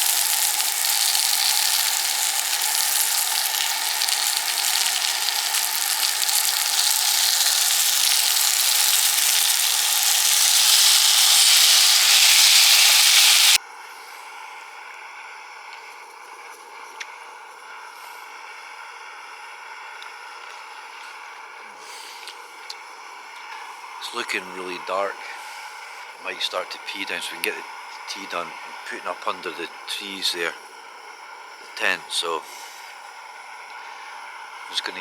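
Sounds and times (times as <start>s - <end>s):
food sizzling in a frying pan: 0.0s - 13.6s.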